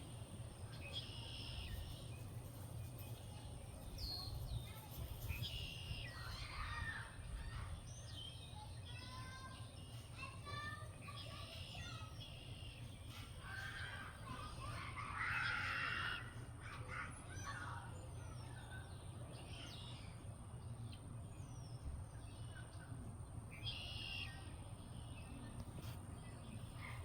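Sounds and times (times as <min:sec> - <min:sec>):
birds calling and chirping: 0:00.0 - 0:27.0
harsh noisy bird call: 0:13.4 - 0:17.7.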